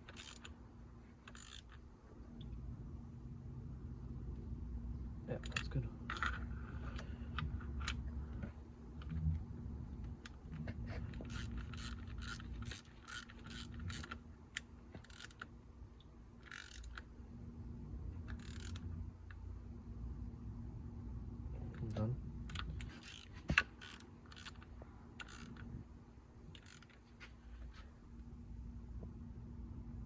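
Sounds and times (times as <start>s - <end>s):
socket ratchet clicking: 0.0s - 0.5s, 1.2s - 1.8s, 11.2s - 15.5s, 16.4s - 17.1s, 18.3s - 18.9s, 22.5s - 25.7s, 26.5s - 27.0s.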